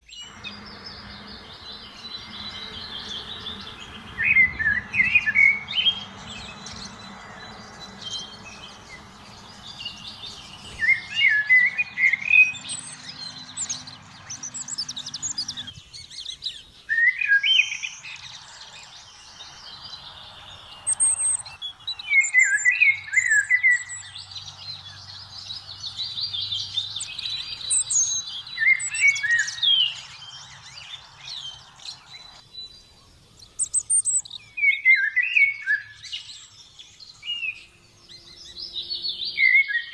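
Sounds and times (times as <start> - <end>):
birds twittering: 0.0 - 39.9
loud bird song phrase: 0.0 - 39.9.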